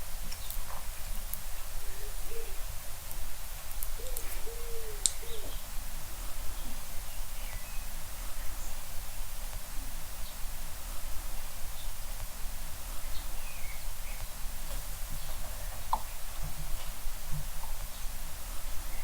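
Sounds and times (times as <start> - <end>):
faint clicks: 0.2 - 1.6, 3.0 - 5.6
bird cooing: 1.6 - 2.8, 3.9 - 8.8.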